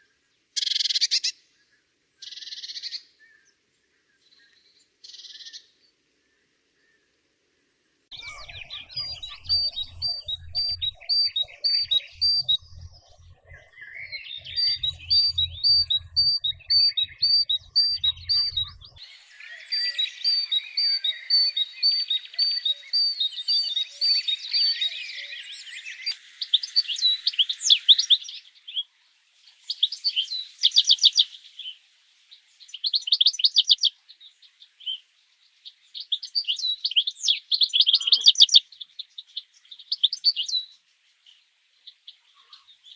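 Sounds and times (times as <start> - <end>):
songbirds singing: 0.0 - 42.9
low pulsing rumble: 8.4 - 19.0.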